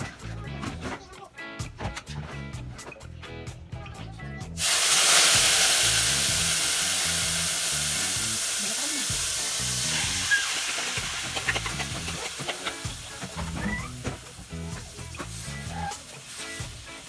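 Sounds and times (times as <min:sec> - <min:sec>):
food frying in hot oil: 0:04.6 - 0:17.0.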